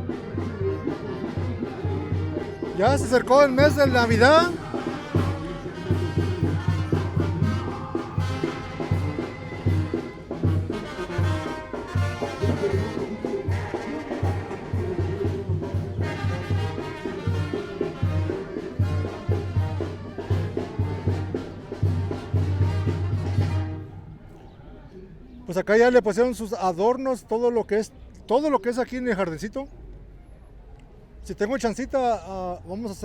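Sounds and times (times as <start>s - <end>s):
trumpets and trombones: 0.0s - 24.2s
bass drum beat: 2.5s - 23.7s.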